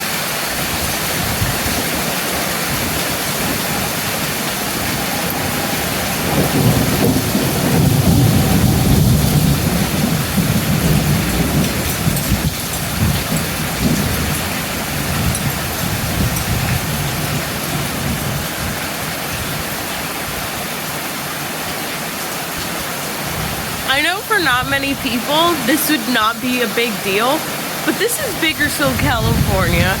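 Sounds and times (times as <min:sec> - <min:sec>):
heavy rain pouring: 0:00.0 - 0:30.0
low rumble of thunder: 0:00.7 - 0:19.6.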